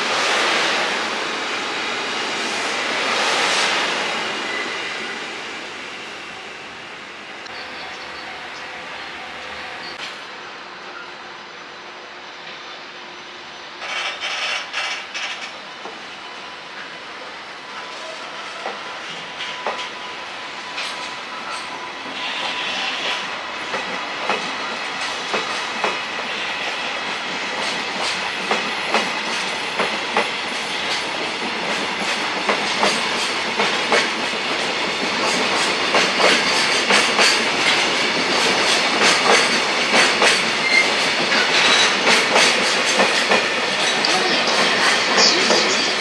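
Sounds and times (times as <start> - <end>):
train wheels clickety-clack: 13.8 - 16.0, 18.1 - 46.0.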